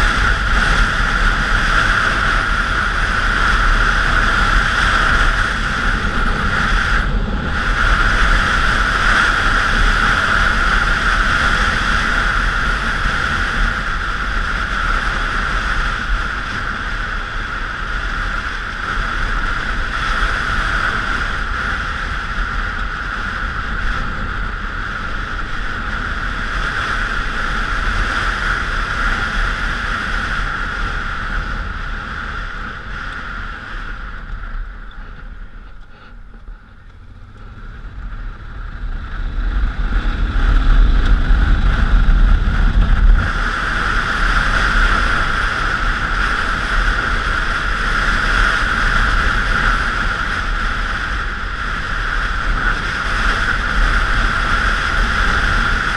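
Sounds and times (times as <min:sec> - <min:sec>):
motorcycle engine running: 0:00.0 - 0:55.9
wind rushing over microphone: 0:00.0 - 0:55.9.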